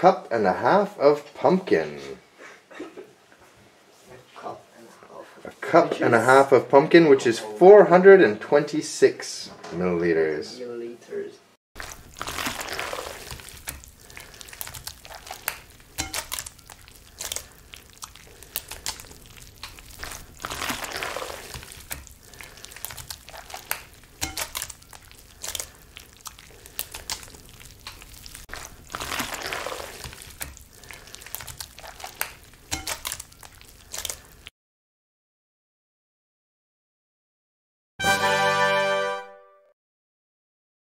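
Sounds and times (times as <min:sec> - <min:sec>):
soft wet puree sounds: 0:11.8 - 0:34.5.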